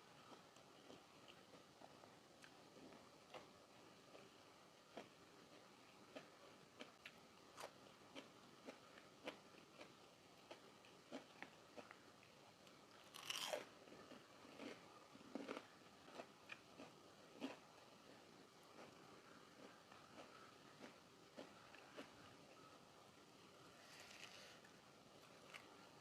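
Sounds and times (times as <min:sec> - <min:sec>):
person chewing crunchy food: 0:04.9 - 0:12.1, 0:13.0 - 0:22.5.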